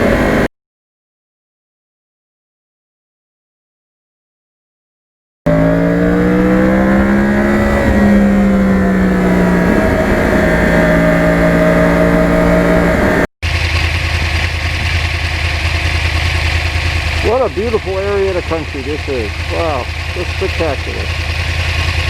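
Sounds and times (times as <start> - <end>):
motorcycle engine accelerating: 0.0 - 0.5, 5.5 - 22.0.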